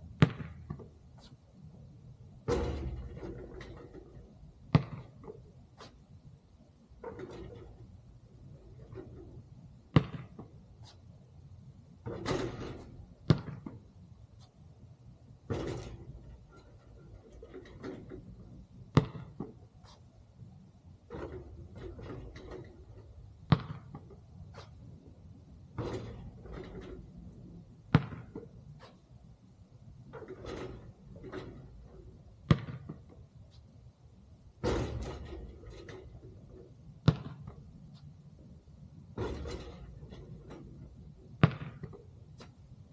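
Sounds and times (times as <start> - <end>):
basketball thudding: 0.1 - 1.4, 2.4 - 6.0, 7.0 - 11.0, 11.8 - 13.9, 15.2 - 20.0, 21.1 - 24.8, 25.7 - 28.9, 30.0 - 33.1, 34.5 - 37.8, 39.1 - 42.6
basketball thudding on hard surface: 0.2 - 0.9, 4.7 - 5.3, 9.9 - 10.4, 12.0 - 13.8, 18.9 - 19.6, 23.5 - 24.1, 27.9 - 28.4, 32.4 - 33.0, 37.0 - 37.5, 41.4 - 42.0.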